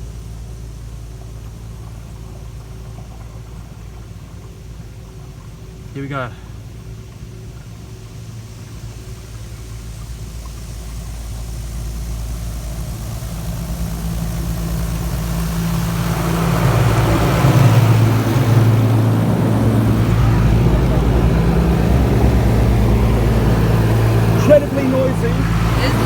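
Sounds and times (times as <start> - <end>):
steady low hum: 0.0 - 26.0
car wash jets spraying: 5.2 - 26.0.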